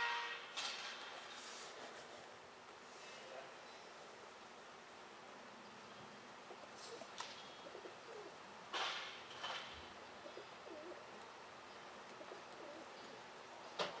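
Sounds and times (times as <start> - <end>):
faint bird cooing: 6.4 - 8.4, 10.0 - 11.4, 12.1 - 13.4.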